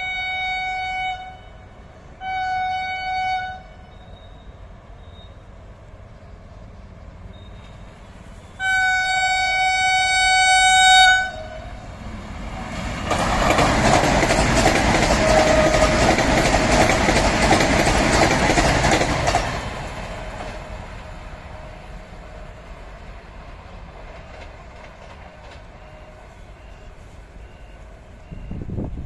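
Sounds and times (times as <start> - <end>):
train horn blast: 0.0 - 4.4, 8.5 - 11.9, 15.1 - 16.2, 25.4 - 28.7
train rushing past: 0.0 - 29.0.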